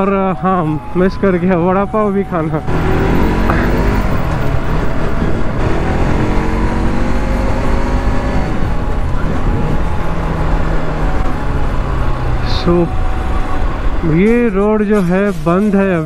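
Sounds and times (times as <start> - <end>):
wind rumbling on microphone: 2.7 - 7.5.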